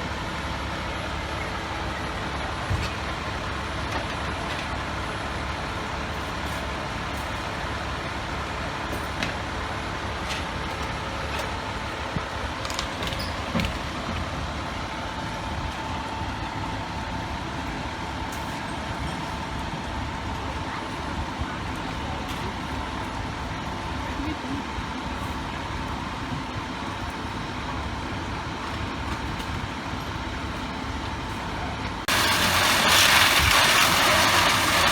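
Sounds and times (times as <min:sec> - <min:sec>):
large vehicle engine running: 0:00.0 - 0:34.9
high whine: 0:32.1 - 0:34.9.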